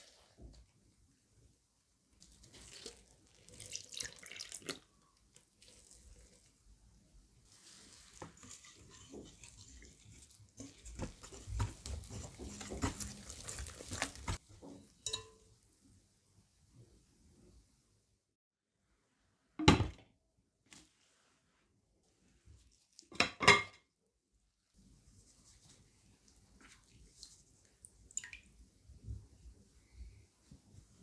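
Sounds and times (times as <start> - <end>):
water splashing and sloshing: 7.5 - 14.9.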